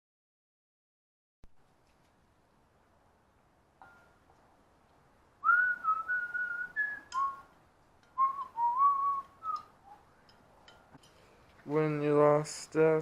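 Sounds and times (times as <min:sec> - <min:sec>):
person whistling a melody: 0:05.4 - 0:07.5, 0:08.2 - 0:10.0.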